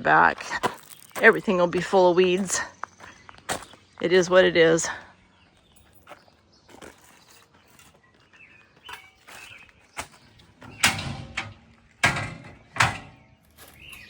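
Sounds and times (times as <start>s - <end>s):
doors and latches clunking: 10.4s - 14.0s.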